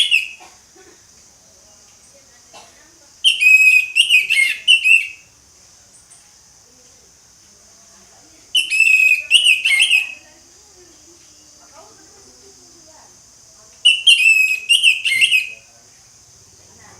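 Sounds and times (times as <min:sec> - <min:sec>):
thrush singing whistled notes: 0:00.0 - 0:00.4, 0:03.2 - 0:06.1, 0:08.6 - 0:10.3, 0:13.8 - 0:15.7
steady high hiss: 0:00.0 - 0:16.9.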